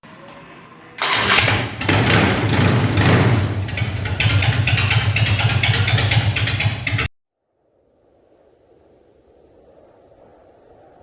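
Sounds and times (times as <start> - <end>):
motorcycle engine revving: 0.3 - 7.1.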